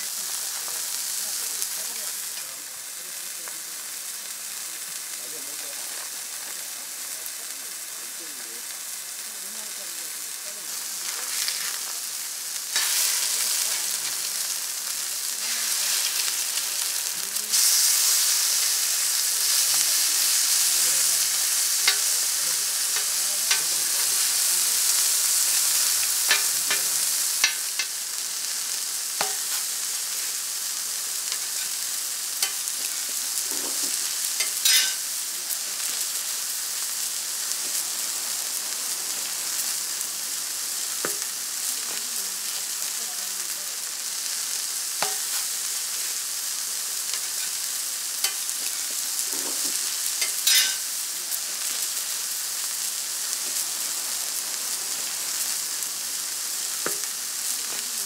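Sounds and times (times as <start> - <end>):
patties and eggs sizzling: 0.0 - 58.0
metal spatula scraping griddle: 11.0 - 11.9, 12.8 - 14.2, 15.4 - 16.7, 21.0 - 24.4, 25.4 - 27.9, 33.5 - 35.0, 48.2 - 50.9.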